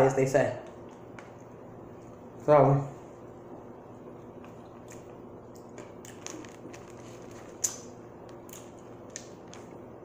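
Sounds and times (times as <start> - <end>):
faint room hum: 0.0 - 10.0
chewing: 4.2 - 9.8.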